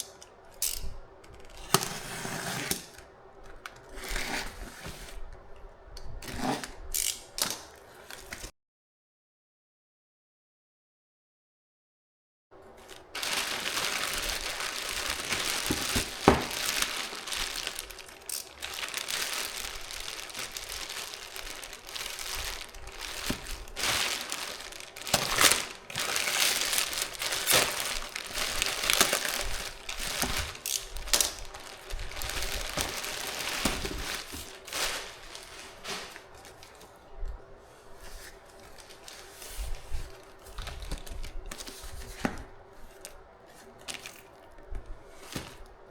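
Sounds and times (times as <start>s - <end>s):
packaging crinkling and rustling: 6.2s - 8.5s, 12.6s - 45.9s.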